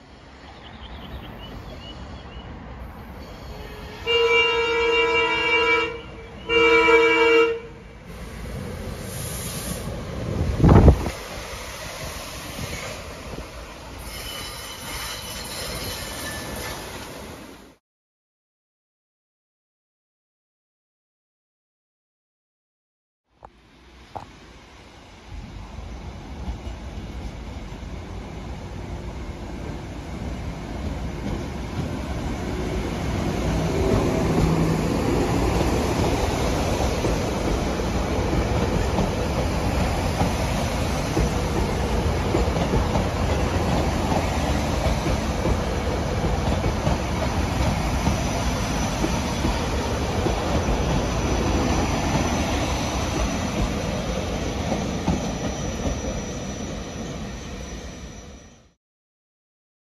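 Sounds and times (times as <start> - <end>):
train wheels on rails passing: 8.0 - 17.8, 23.4 - 58.8.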